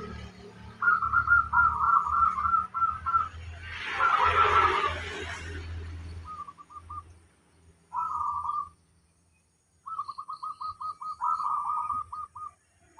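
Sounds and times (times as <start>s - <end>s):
dove cooing: 0.8s - 3.3s, 7.9s - 8.7s, 9.9s - 12.6s.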